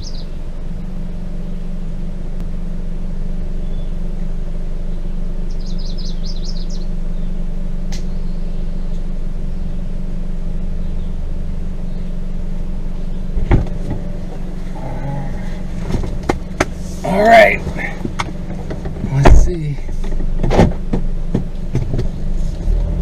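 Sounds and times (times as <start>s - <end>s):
bird chirps: 0.0s - 0.5s, 3.3s - 4.2s, 4.8s - 13.4s
car driving over rough trail: 0.0s - 23.0s
sharp thump: 13.4s - 14.1s, 18.0s - 19.5s.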